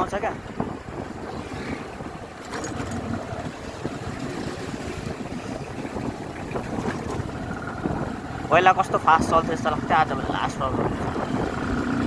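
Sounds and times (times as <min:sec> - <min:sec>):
wind rush on microphone: 0:00.0 - 0:12.0
motorcycle engine running: 0:02.0 - 0:12.0.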